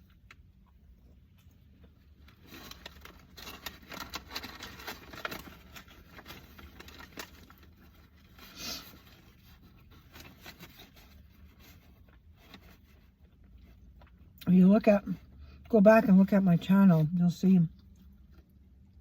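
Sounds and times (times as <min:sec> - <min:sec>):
rustling of objects handled: 0:01.0 - 0:14.4.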